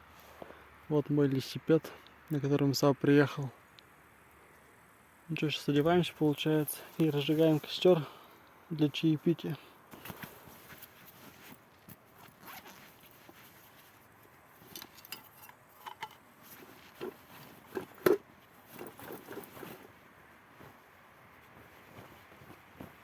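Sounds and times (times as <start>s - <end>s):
clothing rustling: 5.7s - 23.0s
zips being pulled: 12.1s - 13.8s, 16.5s - 20.0s.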